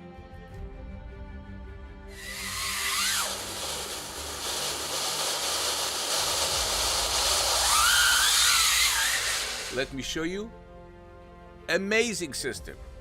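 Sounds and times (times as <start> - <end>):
machine hissing rush: 2.2 - 10.0
thin gliding whine: 2.2 - 10.0.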